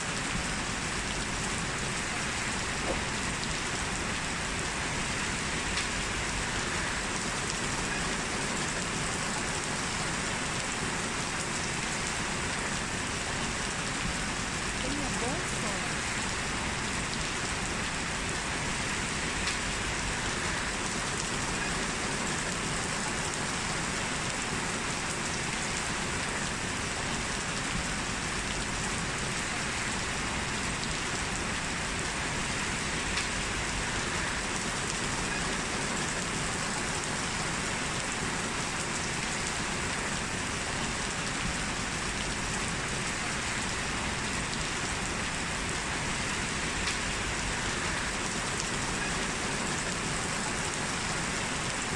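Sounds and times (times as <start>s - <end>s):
heavy rain hissing: 0.0s - 51.9s
raindrop ticks: 5.7s - 6.0s, 19.4s - 19.8s, 33.0s - 33.6s, 46.8s - 47.2s.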